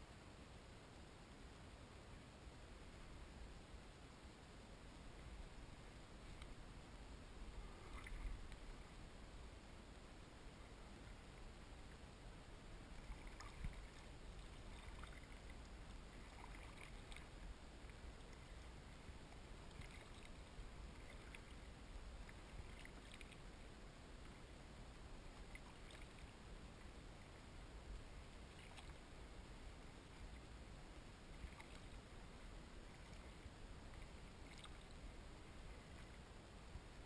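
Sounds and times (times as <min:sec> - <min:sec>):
quiet background hiss: 0:00.0 - 0:37.0
kayak paddle dips and drips: 0:07.6 - 0:08.7, 0:12.9 - 0:23.5, 0:25.3 - 0:27.4, 0:31.0 - 0:32.1, 0:32.8 - 0:36.3.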